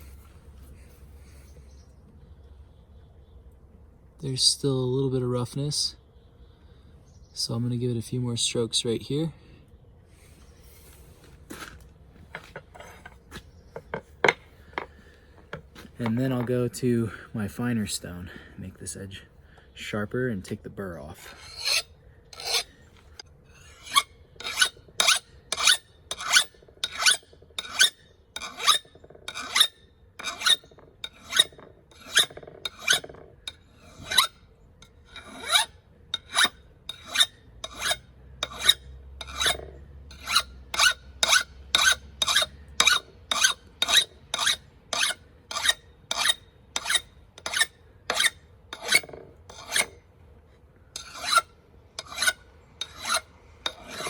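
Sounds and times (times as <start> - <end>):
file rasping on axe edge: 21.2 - 22.7, 23.5 - 50.0, 51.0 - 54.0.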